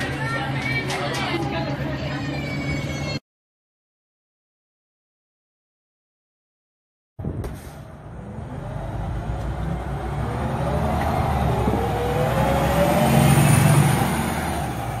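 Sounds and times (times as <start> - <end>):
bus engine accelerating: 7.3 - 15.0.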